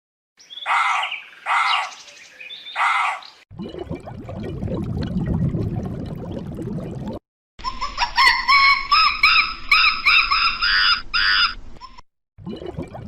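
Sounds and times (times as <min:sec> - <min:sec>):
high-pitched bird calls: 0:00.4 - 0:03.4, 0:07.6 - 0:12.0.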